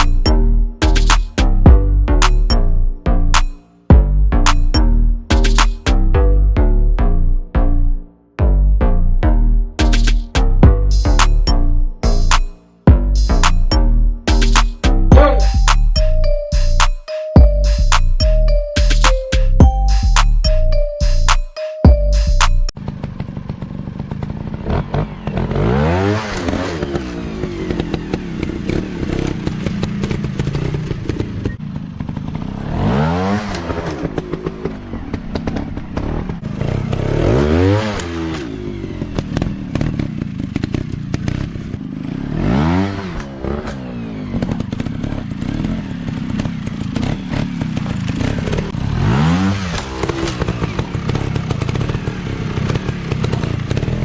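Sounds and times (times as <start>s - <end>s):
dirt bike engines revving: 24.2s - 54.0s.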